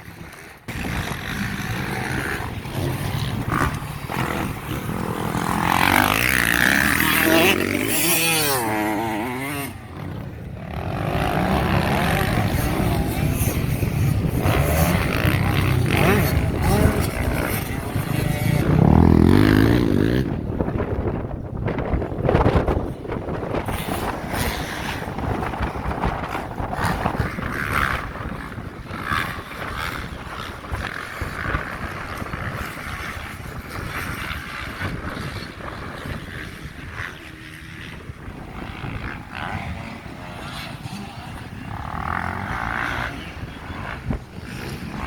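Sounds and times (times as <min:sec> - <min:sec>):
motocross bike engines revving: 0:00.0 - 0:45.0.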